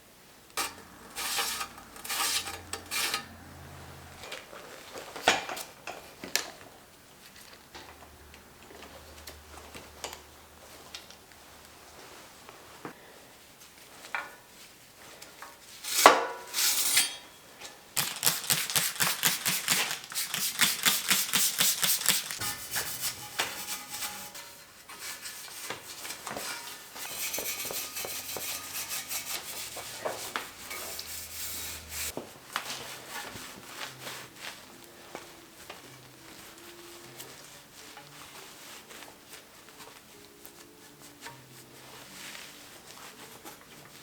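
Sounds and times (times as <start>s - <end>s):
metal parts rubbing: 0.6s - 3.4s, 18.0s - 32.1s
quick clicks of hand tools: 18.0s - 24.0s.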